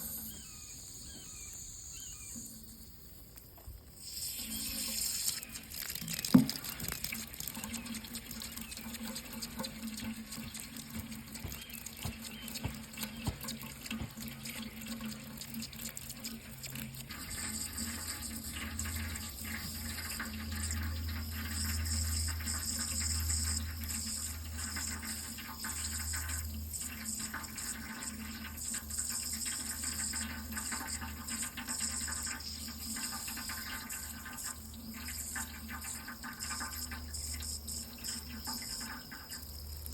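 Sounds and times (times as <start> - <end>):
water running from tap: 3.8 - 39.9.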